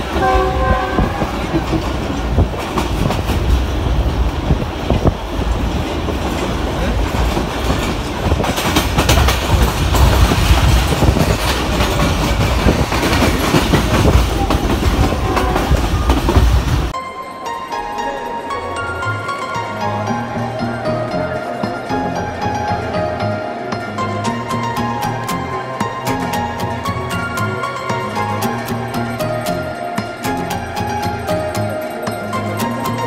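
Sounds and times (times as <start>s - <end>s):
train horn: 0.0s - 1.6s
train rumble: 0.0s - 17.0s
wheels clacking over rail joints: 0.0s - 17.0s.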